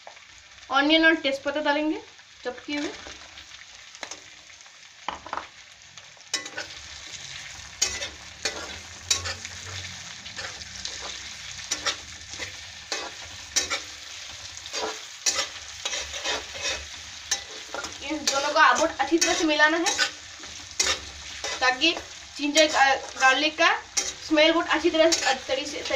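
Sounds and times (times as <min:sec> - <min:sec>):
onions sizzling in hot oil: 0:00.0 - 0:25.9
spatula scraping metal pan: 0:06.4 - 0:25.9.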